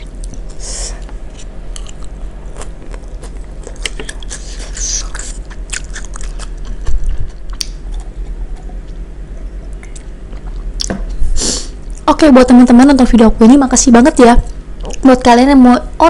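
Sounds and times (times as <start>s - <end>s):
wet crunchy chewing: 1.3s - 9.0s.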